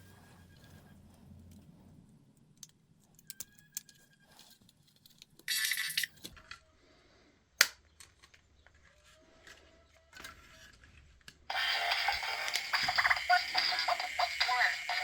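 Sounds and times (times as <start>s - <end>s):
tinny music from small speaker: 11.5s - 15.0s.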